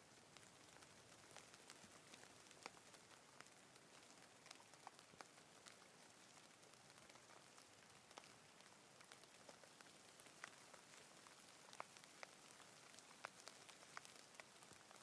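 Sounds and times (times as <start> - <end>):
light rain hiss: 0.0 - 15.0
raindrops ticking: 0.0 - 15.0.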